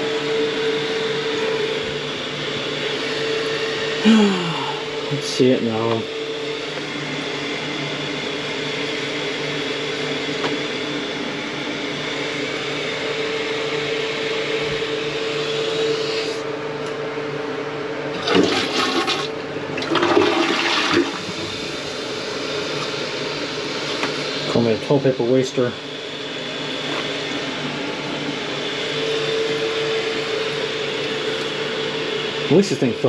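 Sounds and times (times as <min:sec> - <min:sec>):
steady hum: 0:00.0 - 0:33.0
tank refilling with running water: 0:18.1 - 0:21.9
toilet flushing: 0:18.1 - 0:22.0.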